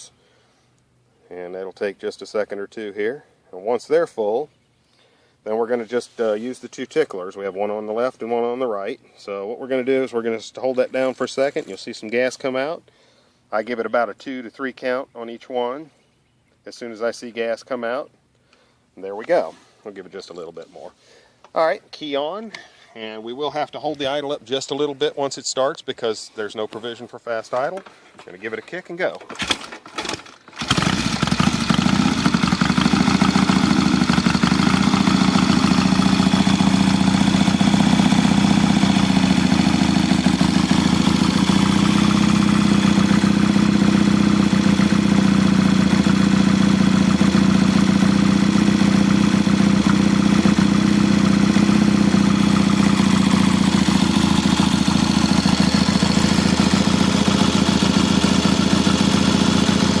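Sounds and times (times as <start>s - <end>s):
motorcycle engine running: 30.6s - 60.0s.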